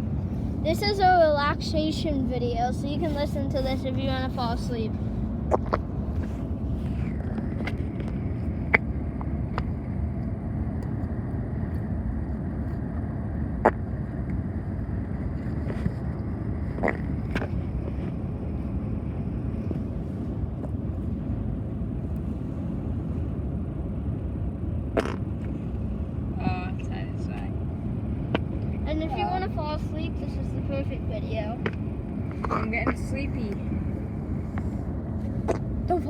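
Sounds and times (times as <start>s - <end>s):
low rumble: 0.0s - 36.0s.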